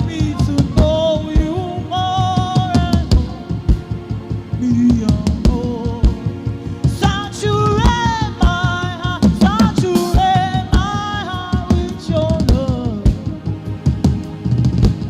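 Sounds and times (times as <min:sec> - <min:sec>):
drum kit steady beat: 0:00.0 - 0:15.0.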